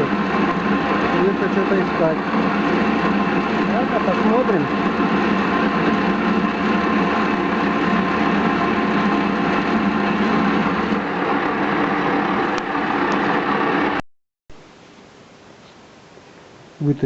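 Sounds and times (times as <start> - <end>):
metal cutting noise: 0.0 - 14.0
metal lathe running: 0.0 - 14.0.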